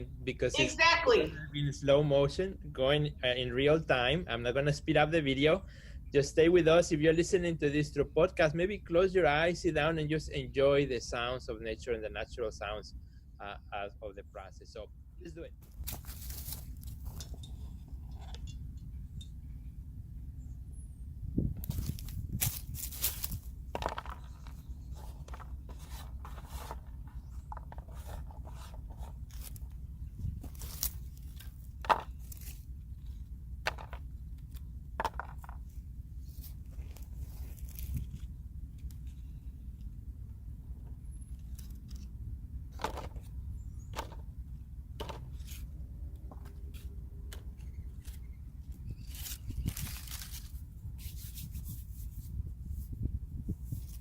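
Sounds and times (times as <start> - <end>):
steady low rumble: 0.0 - 54.0
hands rustling plant material: 15.6 - 18.0, 21.6 - 33.2, 36.2 - 39.2, 49.0 - 54.0.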